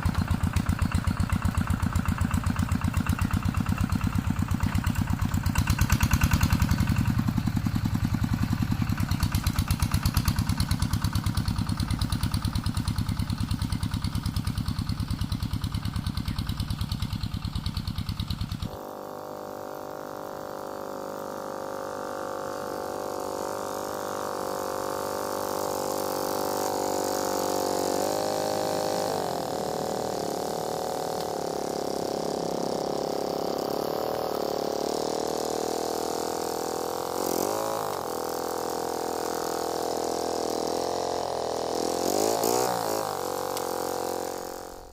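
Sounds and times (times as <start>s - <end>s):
diesel engine chugging: 0.0s - 18.8s, 26.9s - 38.1s
smoother higher-pitched engine: 0.0s - 44.9s.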